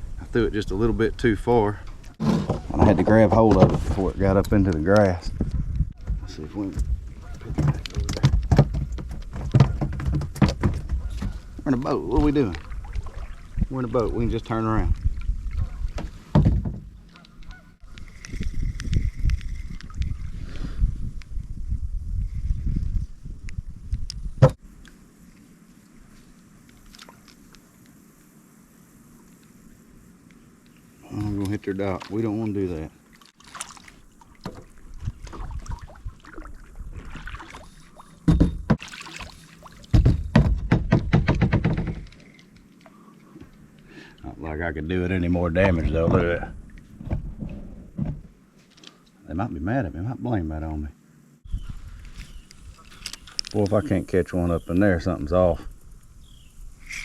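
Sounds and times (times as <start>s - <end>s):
knocks and clicks on hull: 4.6s - 13.2s, 15.5s - 17.6s, 38.2s - 38.9s, 39.8s - 42.5s, 45.6s - 48.4s
paddle strokes in water: 33.0s - 40.1s.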